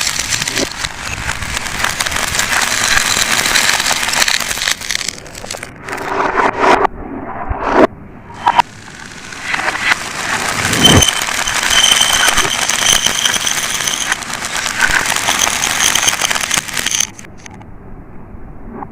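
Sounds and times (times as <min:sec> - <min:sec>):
marbles rolling and clattering: 0:00.0 - 0:06.0, 0:08.4 - 0:17.5
steady high ringing: 0:08.4 - 0:17.2.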